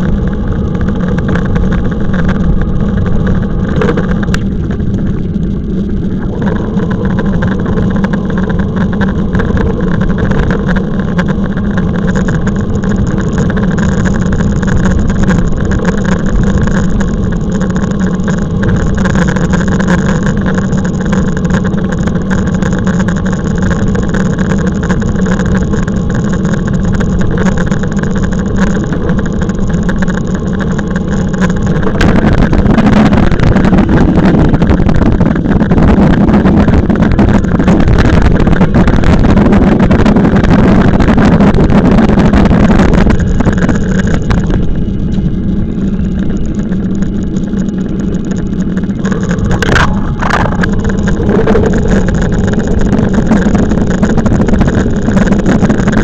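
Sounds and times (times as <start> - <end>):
electric bike motor hum: 0.0 - 56.0
wind noise on microphone: 0.0 - 56.0.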